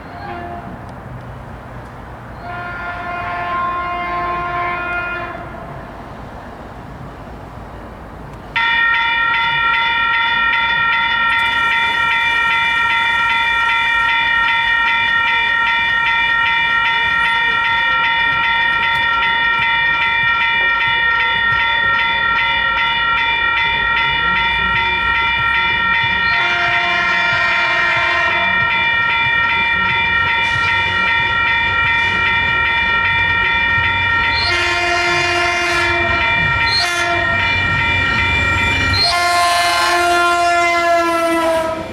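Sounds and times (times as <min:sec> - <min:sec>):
train horn chord: 0:00.0 - 0:00.9, 0:02.4 - 0:06.0, 0:23.4 - 0:41.9
passing train rumble: 0:00.0 - 0:41.9.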